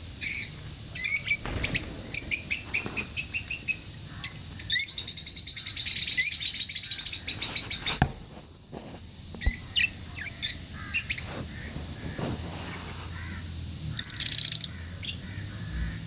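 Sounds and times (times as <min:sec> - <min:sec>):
lovebirds chirping: 0:00.0 - 0:08.1, 0:09.4 - 0:12.8.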